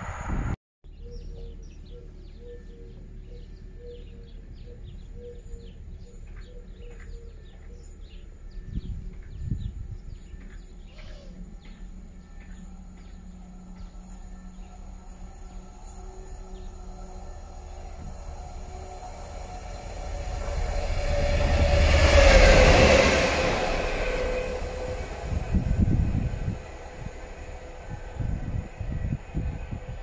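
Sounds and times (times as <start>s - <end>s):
steady low rumble: 0.0s - 30.0s
small birds chirping: 0.9s - 17.9s.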